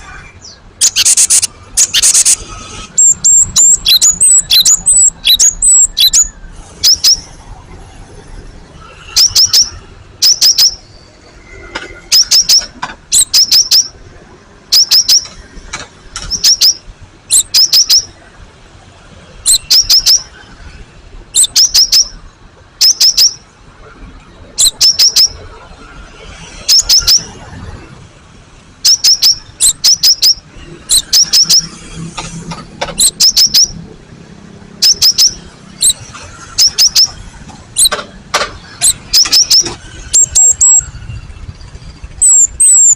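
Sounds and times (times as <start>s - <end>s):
bird singing sharp high notes: 0.2s - 7.4s, 8.9s - 14.0s, 14.6s - 15.6s, 16.2s - 18.2s, 19.4s - 20.5s, 21.4s - 23.4s, 24.6s - 25.5s, 26.5s - 27.4s, 28.8s - 32.0s, 33.0s - 33.8s, 34.7s - 38.0s, 38.6s - 42.9s.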